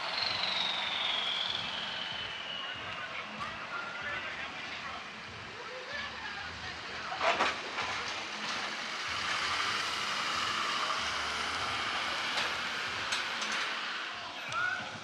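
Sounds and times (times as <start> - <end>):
car driving past: 7.4 - 14.3.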